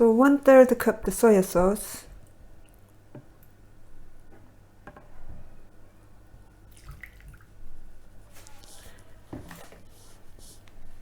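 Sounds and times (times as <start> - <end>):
liquid trickling and dripping: 6.7 - 7.5.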